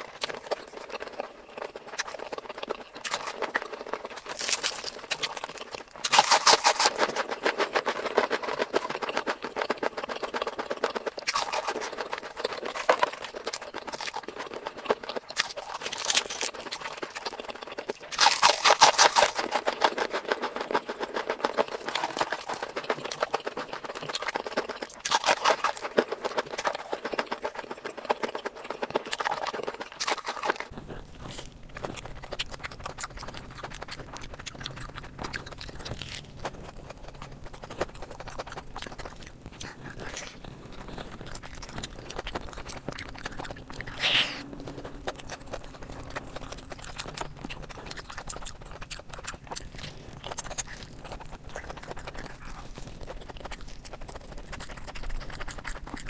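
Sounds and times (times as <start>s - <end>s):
wet chewing and crunching: 0.0s - 56.0s
low hum: 30.7s - 51.6s.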